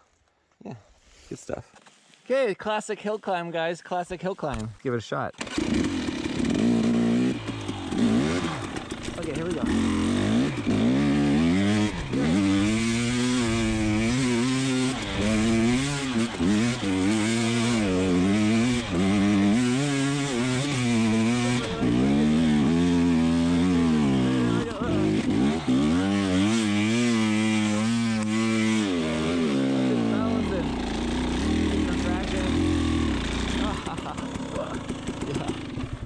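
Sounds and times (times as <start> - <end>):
dirt bike engine revving: 5.4 - 36.0.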